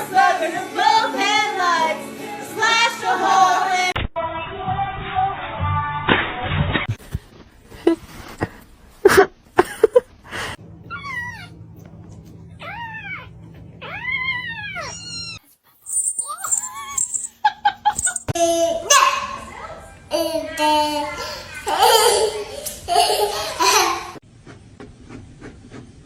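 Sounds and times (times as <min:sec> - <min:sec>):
cat meowing: 0:12.6 - 0:15.4.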